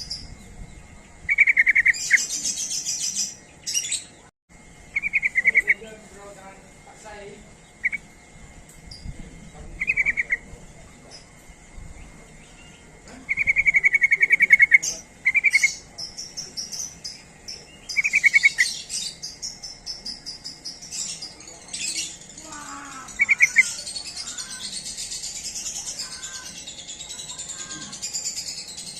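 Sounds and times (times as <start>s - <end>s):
higher bird twittering: 0.0s - 28.9s
bulbul bubbling calls: 1.3s - 2.3s, 4.9s - 5.9s, 7.6s - 8.1s, 9.7s - 10.5s, 12.7s - 21.4s, 22.6s - 26.6s
high insect trill: 4.5s - 28.9s.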